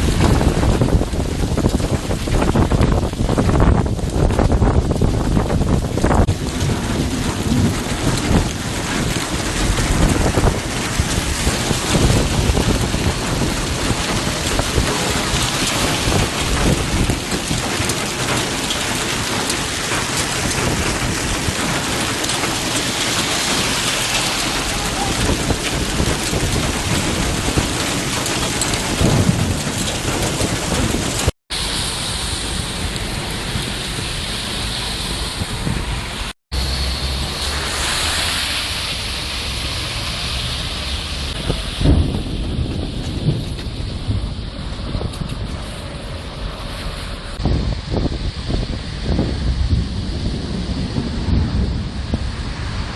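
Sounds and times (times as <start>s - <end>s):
heavy rain pouring: 0.0s - 52.9s
thunder rumbling: 0.0s - 52.9s.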